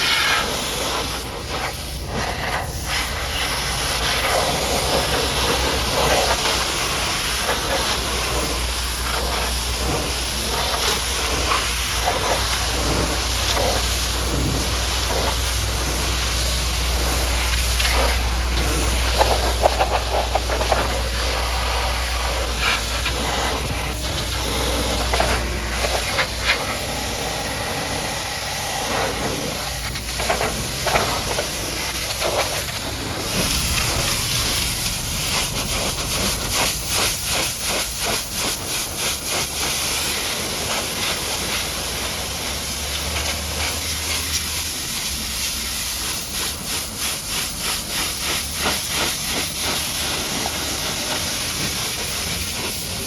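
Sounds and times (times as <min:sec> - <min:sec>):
pressure washer spraying: 0:00.0 - 0:53.0
low hum: 0:01.6 - 0:39.1.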